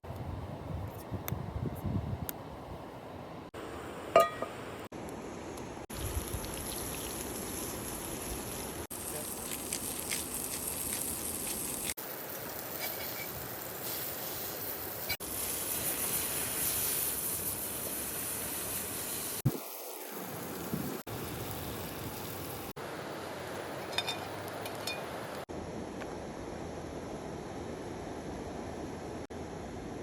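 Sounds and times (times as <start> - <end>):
food sizzling in a hot pan: 5.9 - 22.8.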